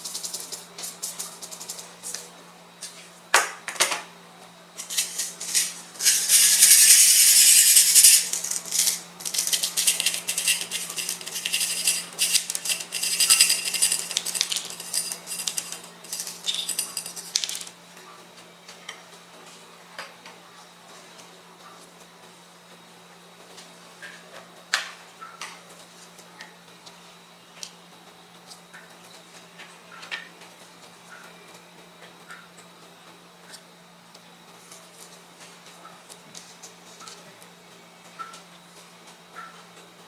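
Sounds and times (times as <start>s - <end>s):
metal spatulas scraping and tapping: 4.8s - 17.7s.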